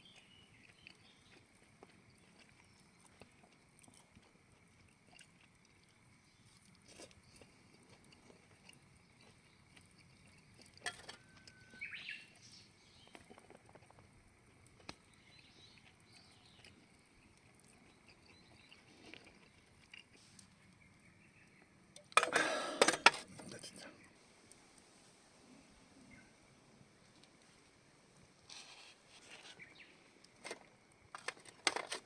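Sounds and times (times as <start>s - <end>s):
faint chirp: 9.1s - 13.2s, 25.5s - 26.5s.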